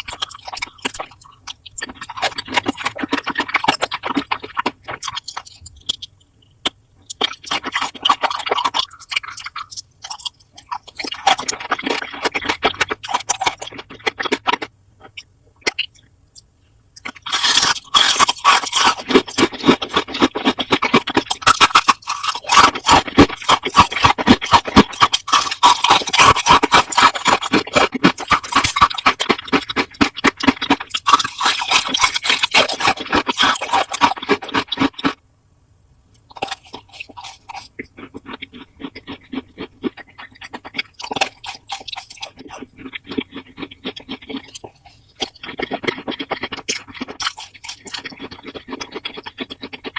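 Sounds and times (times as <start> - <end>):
loud crunching and scraping: 17.1 - 35.2.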